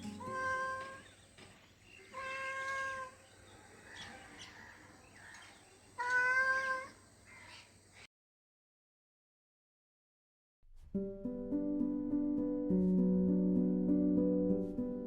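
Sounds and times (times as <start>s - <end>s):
cat meowing: 0.2s - 1.1s, 2.0s - 3.2s, 6.0s - 7.6s.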